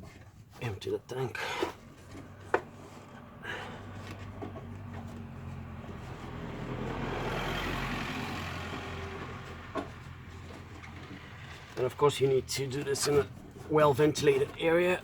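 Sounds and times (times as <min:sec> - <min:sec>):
motor vehicle passing by: 0:01.8 - 0:12.6.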